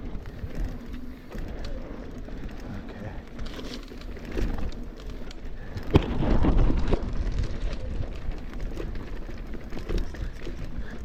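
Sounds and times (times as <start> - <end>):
bike rattling: 0.0 - 11.0
tyres crunching over dirt: 0.0 - 11.0
wind buffeting microphone: 5.5 - 11.0.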